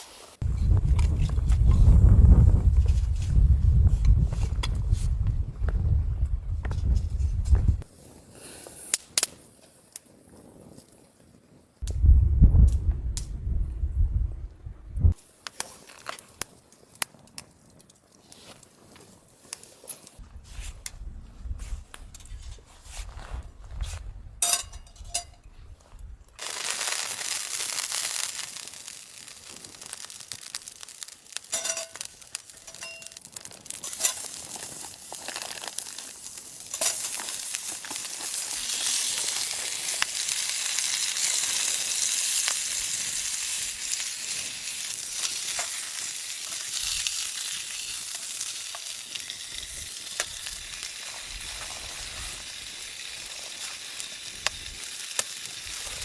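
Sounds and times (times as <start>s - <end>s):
steak sizzling in a pan: 26.4s - 56.0s
light clinks: 31.5s - 34.9s.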